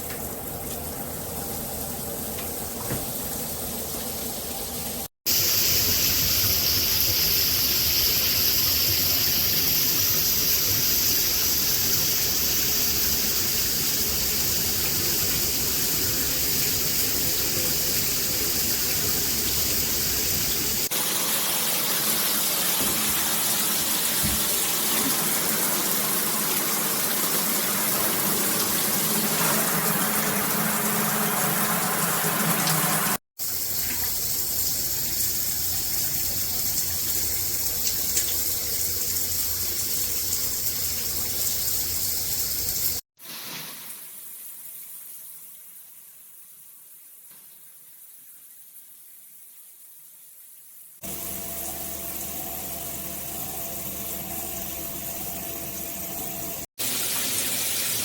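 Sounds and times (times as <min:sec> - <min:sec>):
shower water spraying: 0:00.0 - 0:44.3, 0:51.0 - 0:58.0.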